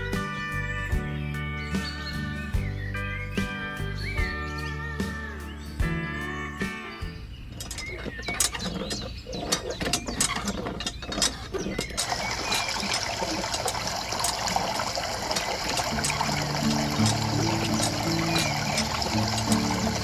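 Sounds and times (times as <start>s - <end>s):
hand pump clicking and rattling: 7.4s - 20.0s
water flowing out: 7.6s - 20.0s.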